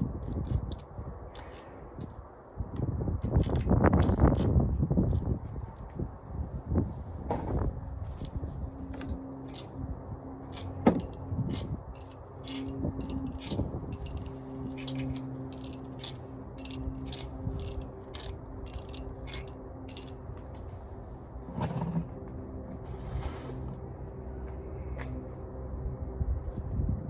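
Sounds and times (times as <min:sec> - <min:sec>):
low steady hum: 0:00.0 - 0:27.0
ratchet clicks: 0:10.6 - 0:20.2
metal clinks: 0:12.0 - 0:20.2.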